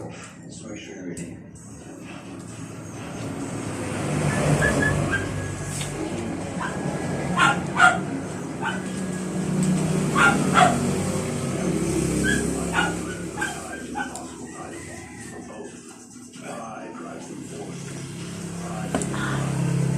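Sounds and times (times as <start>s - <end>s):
dog yipping: 4.6s - 5.6s, 6.6s - 9.1s, 10.1s - 10.8s, 12.2s - 14.3s.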